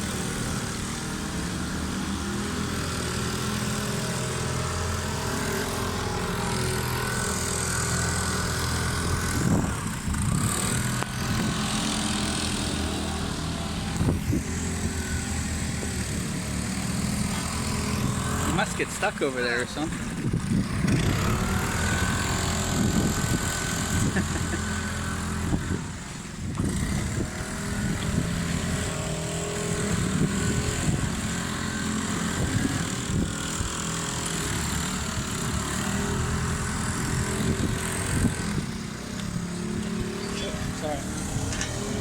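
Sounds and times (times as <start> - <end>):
small engines running: 0.0 - 42.0.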